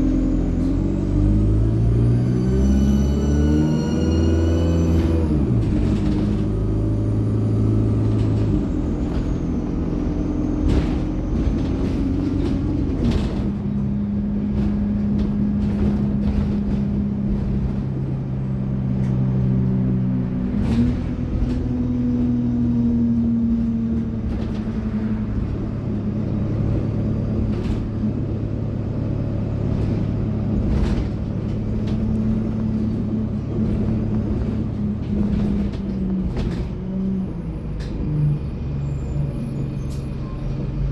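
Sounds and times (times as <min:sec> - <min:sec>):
bus diesel engine: 0:00.0 - 0:40.9
rattles and clicks: 0:29.6 - 0:37.0.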